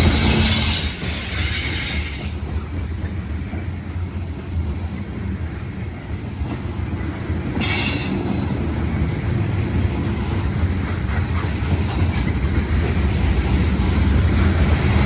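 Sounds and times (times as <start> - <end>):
high-pitched wheel squeal: 0.0 - 2.3
freight train rumbling past: 0.0 - 15.0.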